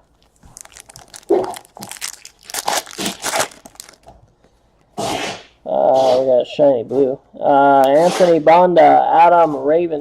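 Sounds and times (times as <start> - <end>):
plastic crinkling and rustling: 0.0 - 4.5.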